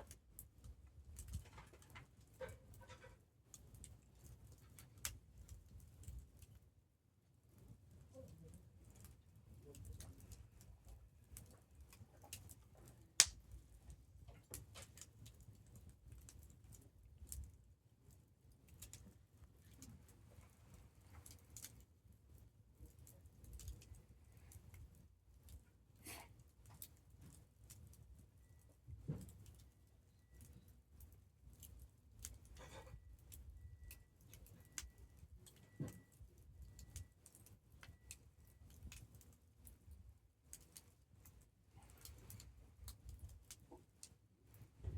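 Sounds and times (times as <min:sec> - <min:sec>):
campfire crackling: 0:00.0 - 0:06.6, 0:07.4 - 0:20.2, 0:21.1 - 0:44.7
fire popping: 0:09.9 - 0:20.0.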